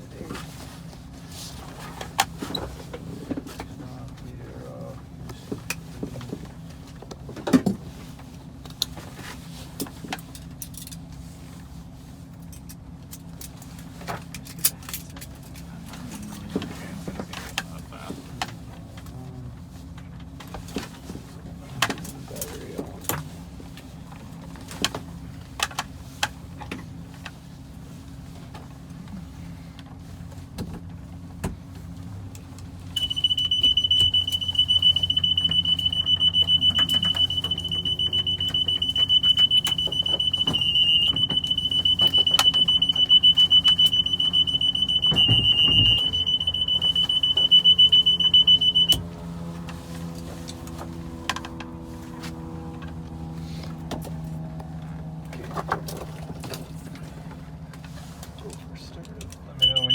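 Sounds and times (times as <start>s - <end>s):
high-pitched cockpit warning horn: 33.0s - 50.2s, 59.6s - 59.9s.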